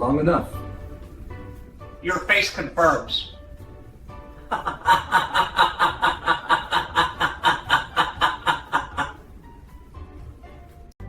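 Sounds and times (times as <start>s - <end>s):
rapid rhythmic laughter: 4.3s - 9.7s.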